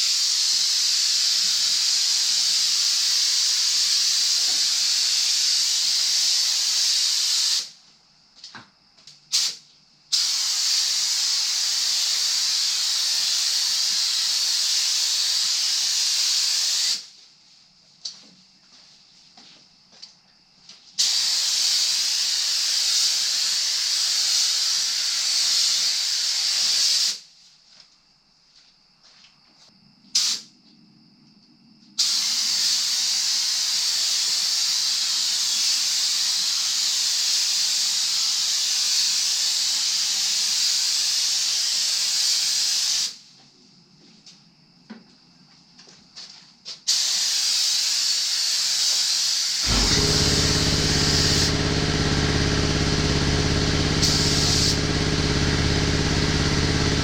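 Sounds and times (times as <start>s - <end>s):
paint spray gun hissing: 0.0s - 7.8s, 9.3s - 17.1s, 21.0s - 27.3s, 30.2s - 30.4s, 32.0s - 43.2s, 46.9s - 57.0s.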